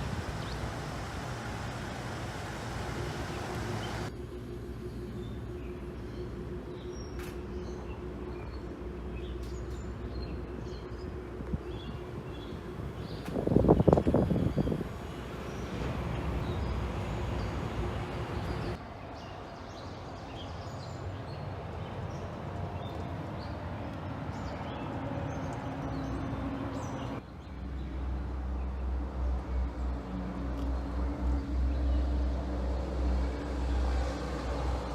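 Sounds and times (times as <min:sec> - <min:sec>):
truck engine running: 0:00.0 - 0:18.8.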